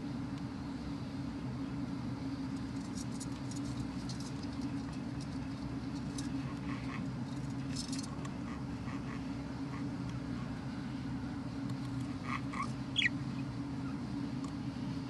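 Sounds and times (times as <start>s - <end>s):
steady low hum: 0.0s - 15.0s
budgerigar chicks cheeping: 12.2s - 14.0s.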